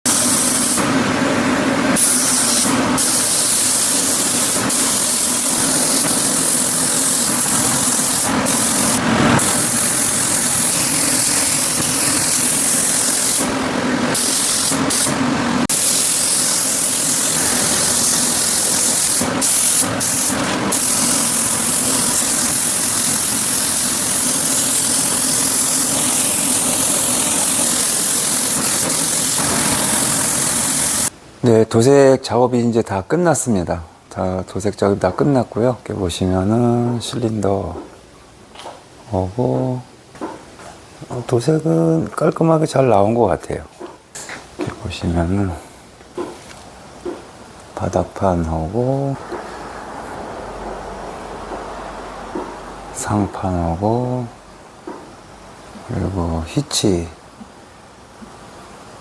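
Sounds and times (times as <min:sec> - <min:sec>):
spray gun hissing: 0:00.1 - 0:01.0, 0:01.9 - 0:31.1.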